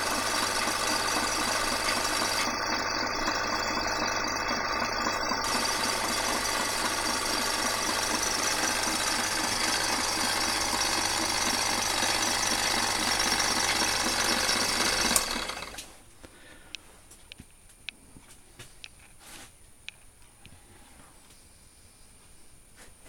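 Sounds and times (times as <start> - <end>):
milling machine clattering: 0.0 - 15.8.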